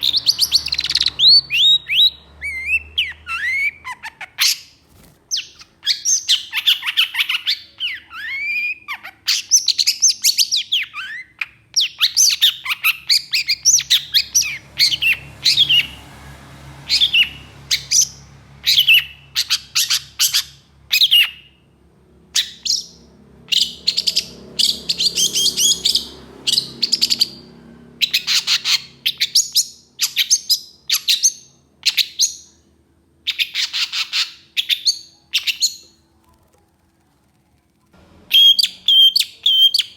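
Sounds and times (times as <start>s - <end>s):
shrike singing: 37.2s - 39.9s.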